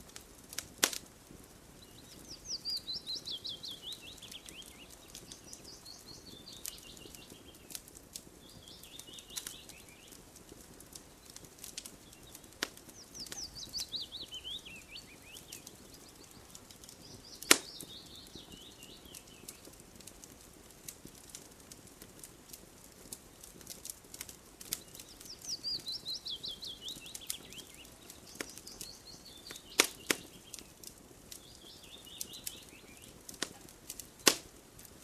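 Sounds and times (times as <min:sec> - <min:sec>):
wood fire crackling and popping: 0:00.0 - 0:35.0
songbird trilling: 0:01.9 - 0:07.4, 0:13.0 - 0:16.4, 0:24.9 - 0:30.6.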